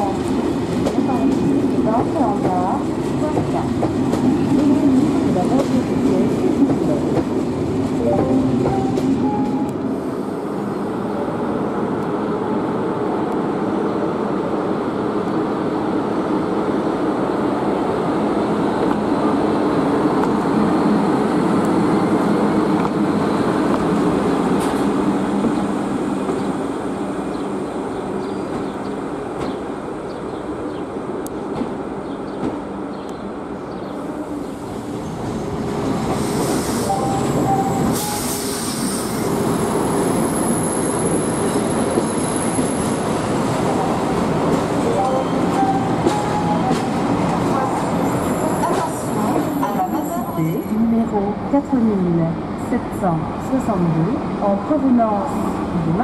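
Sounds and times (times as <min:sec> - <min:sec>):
coach wheels squealing: 0:47.9 - 0:50.7.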